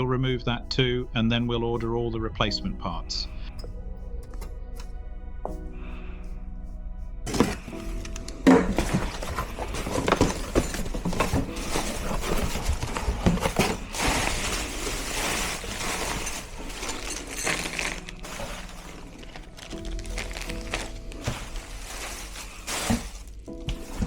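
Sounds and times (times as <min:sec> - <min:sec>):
hand tools knocking on metal parts: 0:07.3 - 0:24.0.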